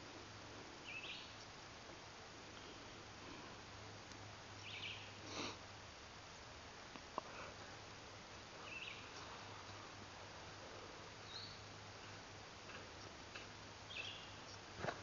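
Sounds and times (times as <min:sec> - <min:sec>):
sniff close to microphone: 0:05.2 - 0:05.6.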